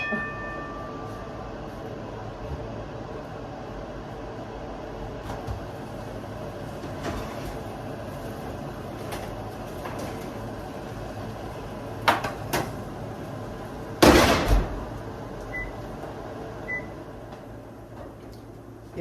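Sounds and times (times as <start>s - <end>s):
short beeps: 0.0s - 1.4s
range hood fan humming: 0.0s - 19.0s
oven door banging shut: 14.0s - 14.9s.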